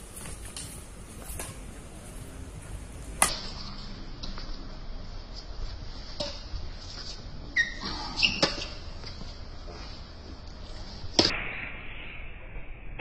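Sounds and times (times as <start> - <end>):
rackets hitting shuttlecock: 3.0 - 4.4, 6.1 - 6.6, 8.2 - 9.2, 11.1 - 11.5
short high squeaks: 7.6 - 8.8.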